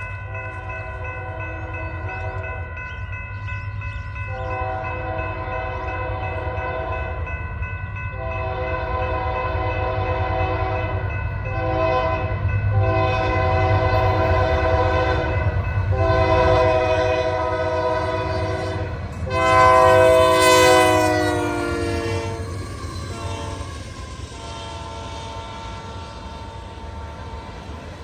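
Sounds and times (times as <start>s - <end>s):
train rumbling past: 0.0s - 28.0s
locomotive air horn blasts: 4.4s - 7.2s, 8.1s - 27.6s.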